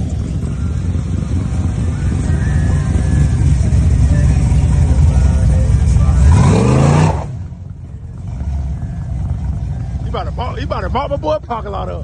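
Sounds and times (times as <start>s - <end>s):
car engine and exhaust rumbling: 0.0s - 12.0s.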